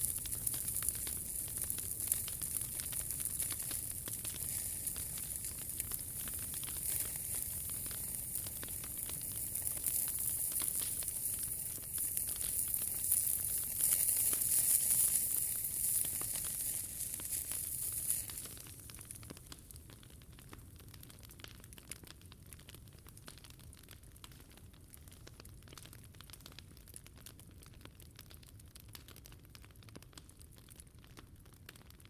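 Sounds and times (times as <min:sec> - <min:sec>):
steady hiss: 0:00.0 - 0:19.7
wood fire crackling: 0:00.0 - 0:32.0.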